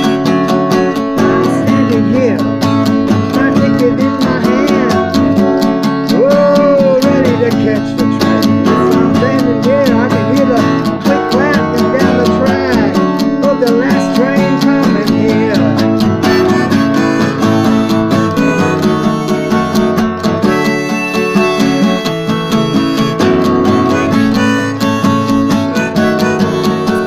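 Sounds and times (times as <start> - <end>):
acoustic guitar strumming: 0.0 - 27.0
wavering melody line: 0.0 - 27.0.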